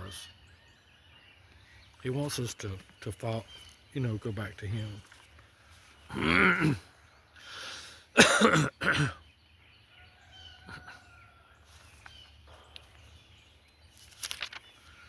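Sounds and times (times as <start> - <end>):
faint bird calls: 8.7 - 15.0.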